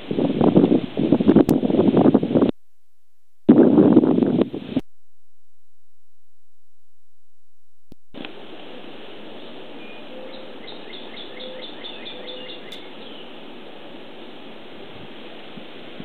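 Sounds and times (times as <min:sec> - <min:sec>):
outdoor background noise: 0:07.9 - 0:16.0
songbird chirping: 0:09.3 - 0:13.4.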